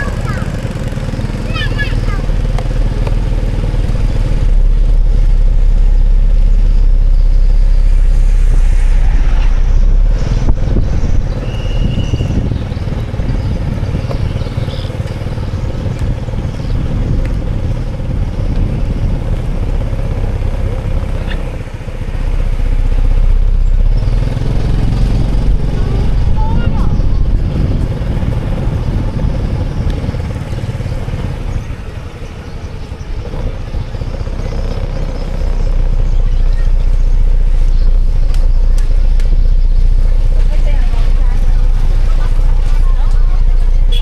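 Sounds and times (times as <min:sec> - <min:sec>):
motorbike engines: 0:00.0 - 0:44.0
vehicles passing: 0:00.0 - 0:44.0.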